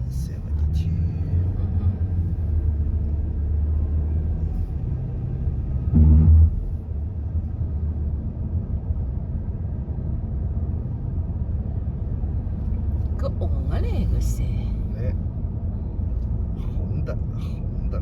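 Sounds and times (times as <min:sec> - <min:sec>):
car engine and tyre rumble: 0:00.0 - 0:18.0
short low-pitched thump: 0:05.9 - 0:06.8.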